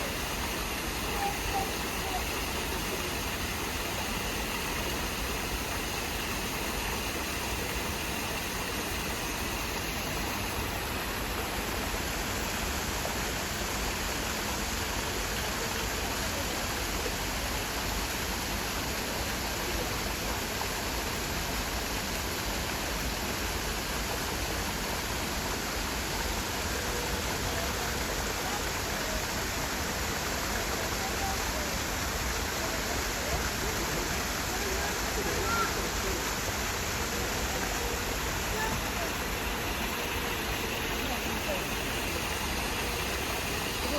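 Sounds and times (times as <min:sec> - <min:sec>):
waterfall rushing: 0:00.0 - 0:16.1, 0:26.0 - 0:43.9.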